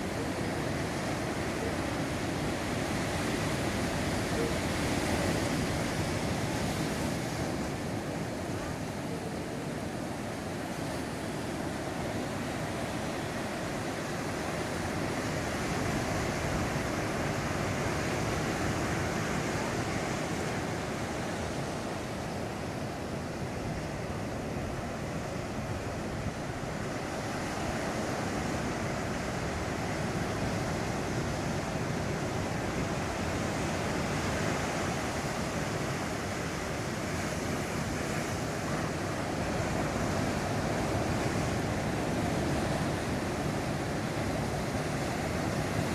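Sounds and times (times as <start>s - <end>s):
heavy surf breaking on beach: 0.0s - 45.9s.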